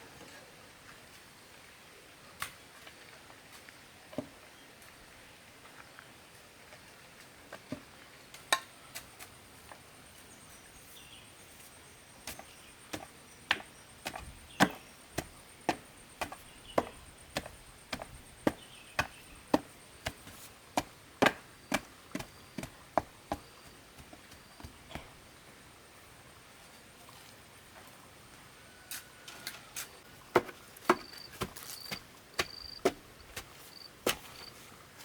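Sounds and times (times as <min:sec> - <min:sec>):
tool chopping wood: 0:12.3 - 0:25.1, 0:30.3 - 0:34.3.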